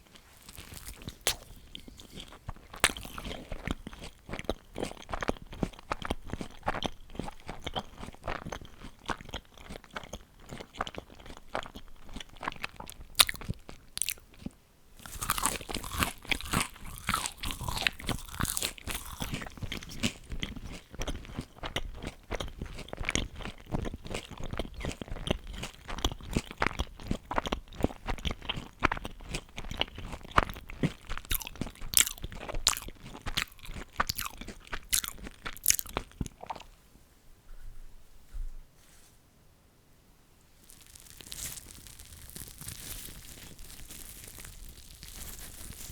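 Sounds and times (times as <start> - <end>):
chewing crisp food: 0.0 - 36.8, 40.6 - 45.9.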